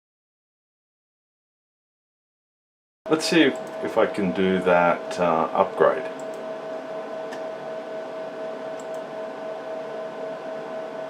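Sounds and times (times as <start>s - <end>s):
cooling fans whirring: 3.1s - 11.0s
mid-pitched hum tone: 3.1s - 11.0s.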